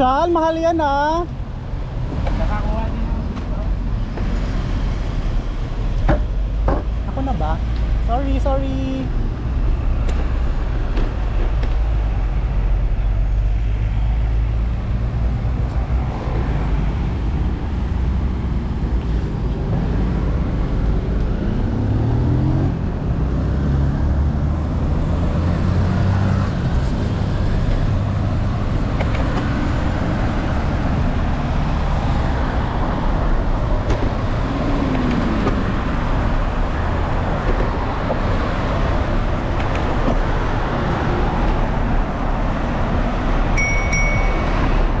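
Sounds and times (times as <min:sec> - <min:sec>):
low rumble of traffic: 0:00.0 - 0:45.0
passing vehicle engines: 0:00.0 - 0:45.0.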